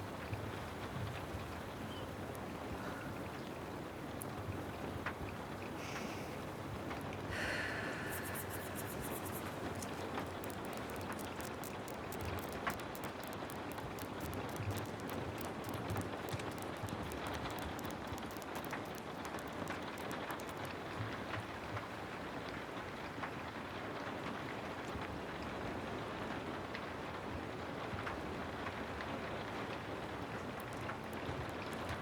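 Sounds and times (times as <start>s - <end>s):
rain falling: 0.0s - 22.3s
light sharp ticks: 0.0s - 22.6s, 28.0s - 32.0s.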